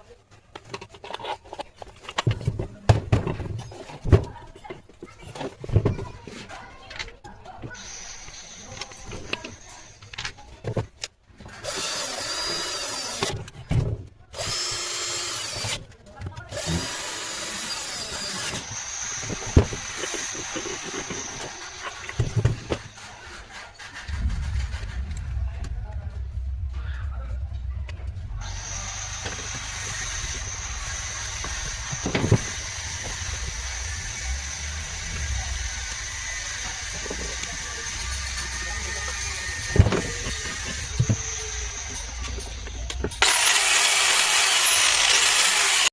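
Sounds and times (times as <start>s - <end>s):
electric cutter motor running: 11.6s - 13.3s, 14.4s - 15.8s, 16.5s - 22.2s, 28.4s - 45.9s.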